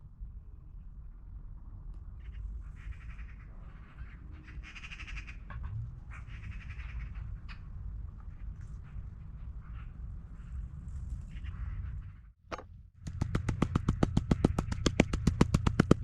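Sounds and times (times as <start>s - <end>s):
steady low rumble: 0.0s - 16.0s
bird harsh raspy calls: 2.2s - 10.6s, 11.3s - 12.4s.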